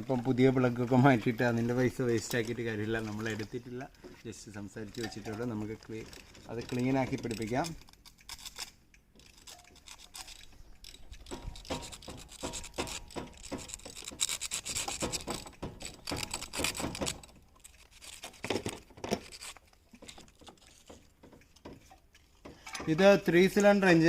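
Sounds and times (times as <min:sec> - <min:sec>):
sandpaper scraping metal: 0:06.5 - 0:19.8.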